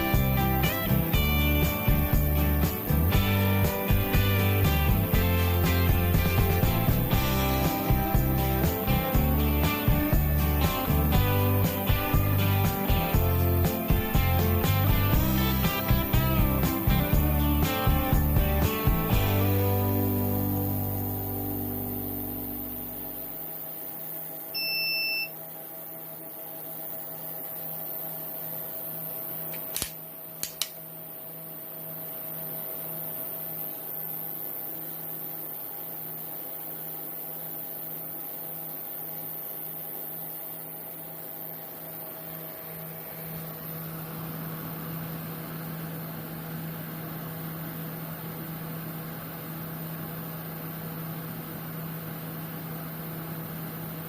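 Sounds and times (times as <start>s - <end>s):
power supply electrical hum: 0.0s - 54.0s
short beep: 24.6s - 25.4s
sharp clicks: 29.5s - 30.8s.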